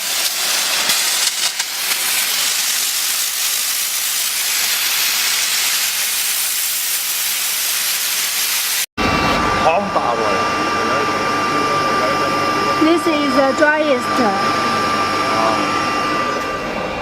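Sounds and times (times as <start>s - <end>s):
steam gun hissing: 0.0s - 8.9s.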